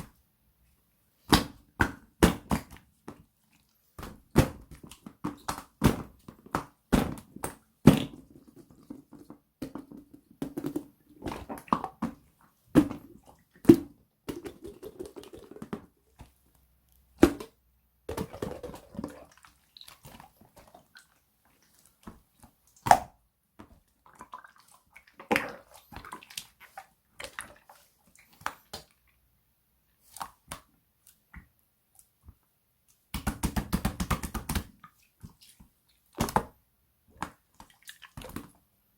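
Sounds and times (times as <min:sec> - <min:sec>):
hands squishing slime: 0:18.1 - 0:29.1.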